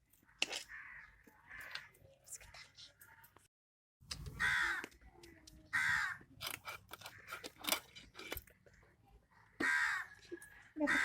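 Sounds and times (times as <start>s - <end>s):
crow cawing: 0.7s - 2.0s, 4.4s - 4.9s, 5.7s - 6.2s, 9.6s - 10.2s
small clicks and scrapes: 6.4s - 8.8s.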